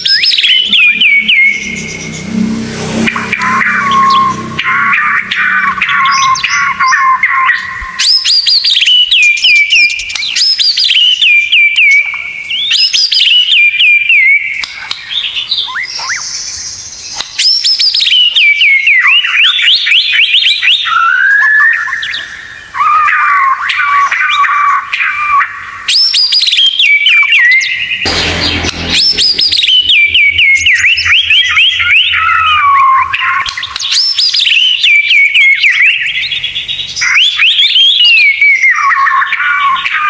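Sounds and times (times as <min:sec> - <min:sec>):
bird singing sharp whistles: 0:00.0 - 0:02.3, 0:03.0 - 0:40.0
bird chattering: 0:00.0 - 0:10.4.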